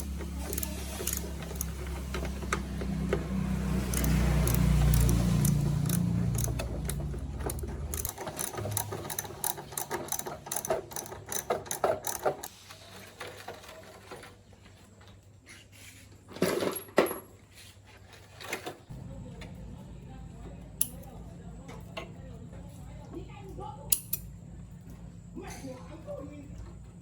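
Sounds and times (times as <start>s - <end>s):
hand tools clicking and rattling: 0.0s - 12.5s.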